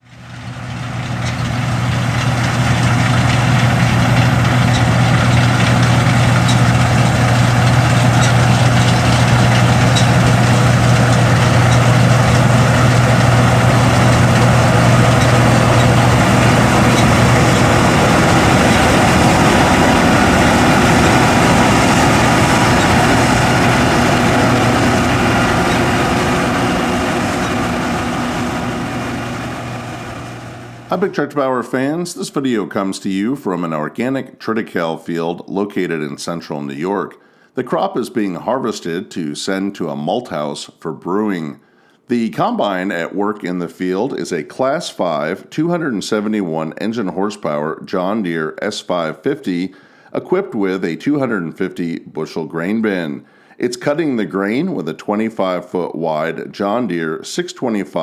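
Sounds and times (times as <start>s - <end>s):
combine harvester engine drone: 0.0s - 31.0s.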